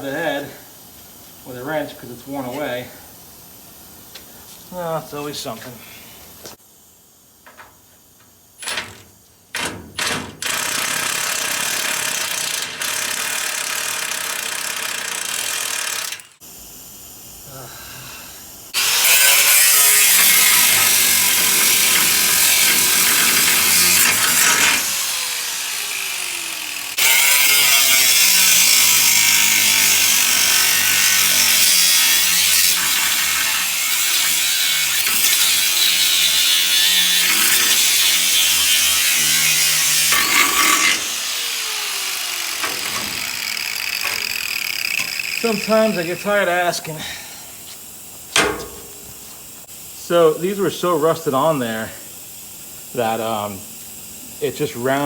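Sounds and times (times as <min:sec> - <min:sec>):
angle grinder cutting metal: 0:10.4 - 0:16.4, 0:18.8 - 0:46.9.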